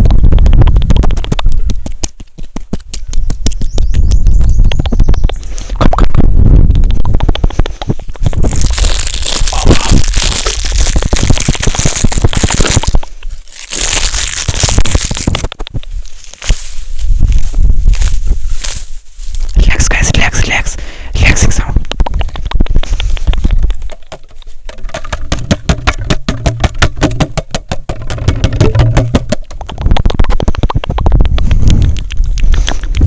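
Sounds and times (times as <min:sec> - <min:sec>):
crackling and crunching: 0:05.4 - 0:20.6, 0:21.6 - 0:33.0.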